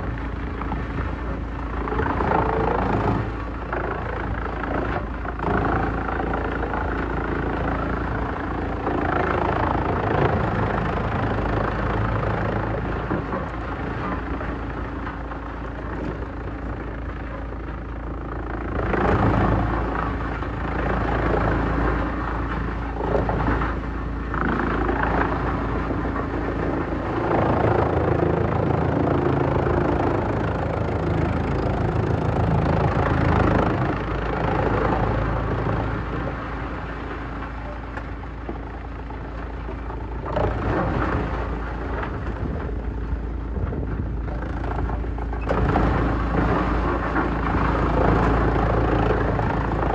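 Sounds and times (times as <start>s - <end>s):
wood chipper shredding wood: 18.8s - 49.9s.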